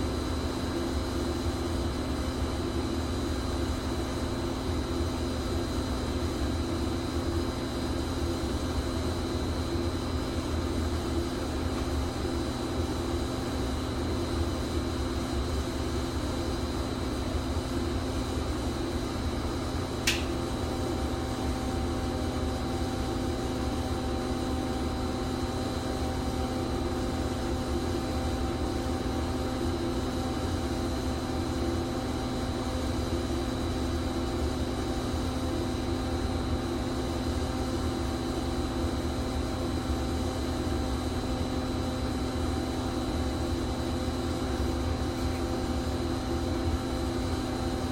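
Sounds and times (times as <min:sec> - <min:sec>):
pipe-thawing machine humming: 0:03.5 - 0:47.9
sharp click: 0:20.0 - 0:20.4.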